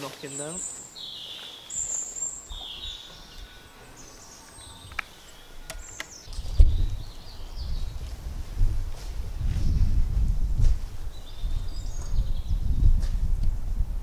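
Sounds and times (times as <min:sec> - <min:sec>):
small birds chirping: 0:00.0 - 0:08.4, 0:10.9 - 0:13.0
sharp clicks: 0:05.7 - 0:06.3.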